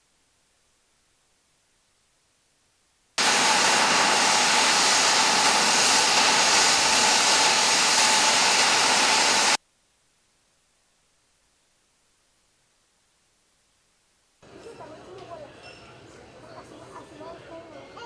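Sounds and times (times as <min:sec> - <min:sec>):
jet engine running: 0:03.2 - 0:09.6.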